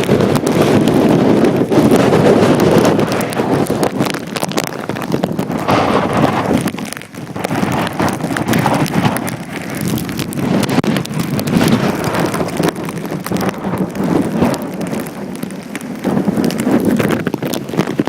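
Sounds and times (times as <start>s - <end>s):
gusty wind buffeting microphone: 0.0s - 18.0s
rain falling: 0.0s - 18.0s.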